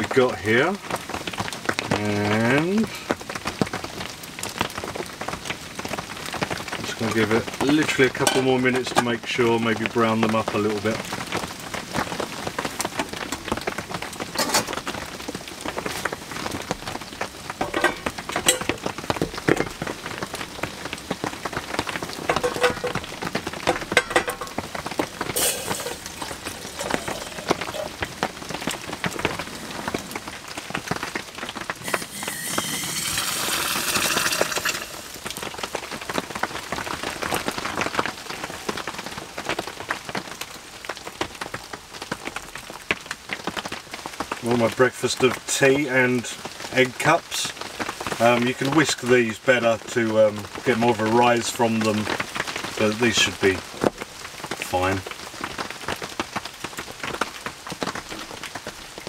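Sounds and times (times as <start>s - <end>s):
heavy rain on cardboard: 0.0s - 59.0s
loud hiss: 25.2s - 28.0s, 31.8s - 35.3s.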